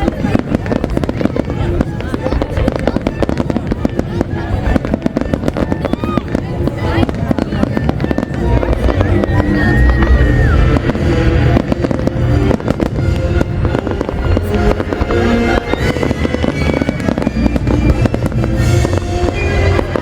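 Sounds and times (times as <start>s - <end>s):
fireworks bangs and crackles: 0.0s - 20.0s
loud music: 8.3s - 20.0s.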